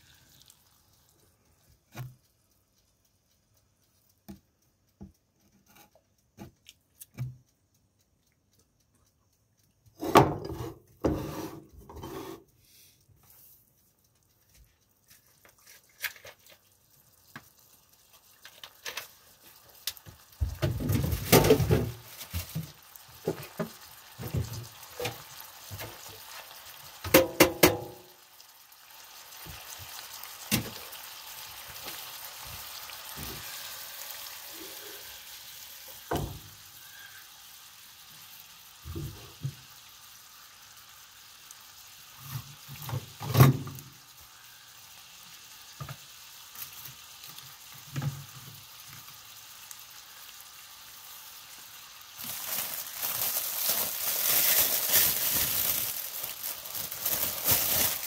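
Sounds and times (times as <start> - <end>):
meatballs sizzling in oil: 0.0 - 58.0.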